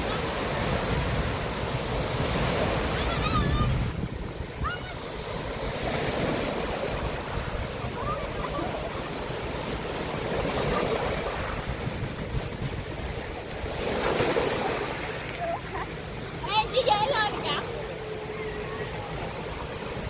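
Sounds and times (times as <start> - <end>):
wind buffeting microphone: 0.0 - 15.6
surf washing onto beach: 0.0 - 20.0.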